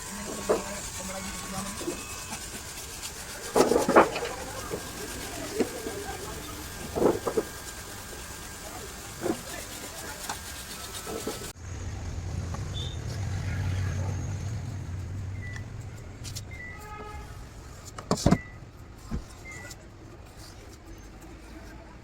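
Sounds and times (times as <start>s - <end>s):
passing vehicle engine rumble: 11.5s - 17.6s.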